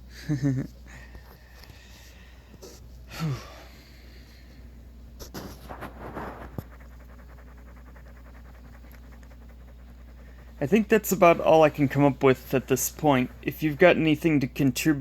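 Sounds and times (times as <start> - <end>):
low steady hum: 0.0 - 15.0
breathy exhalations: 0.9 - 4.6.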